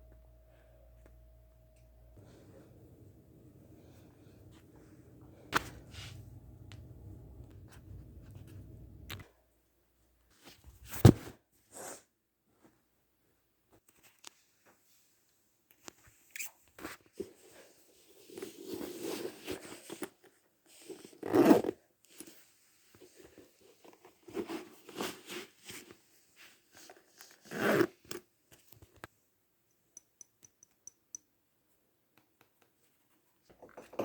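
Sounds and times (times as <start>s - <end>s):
rustling and scraping: 3.8s - 9.2s.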